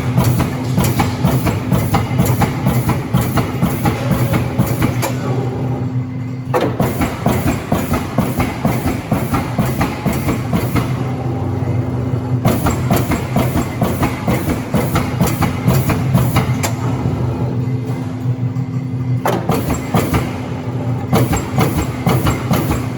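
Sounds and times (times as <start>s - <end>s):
punch press punching sheet metal: 0.0s - 5.5s, 12.4s - 17.0s, 19.2s - 22.9s
steady machine hum: 0.0s - 22.9s.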